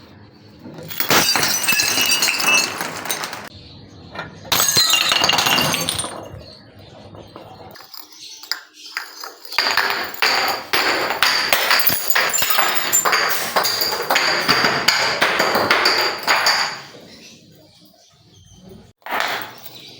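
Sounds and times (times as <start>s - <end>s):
glass bottles being crushed: 0.6s - 3.5s, 4.4s - 6.6s, 7.6s - 17.0s
glass shards clinking: 0.8s - 3.5s, 4.5s - 6.5s, 7.8s - 16.9s.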